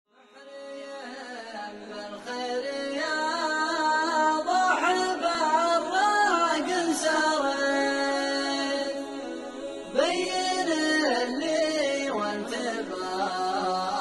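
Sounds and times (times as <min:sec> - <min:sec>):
voices chanting unaccompanied: 0:06.0 - 0:14.0.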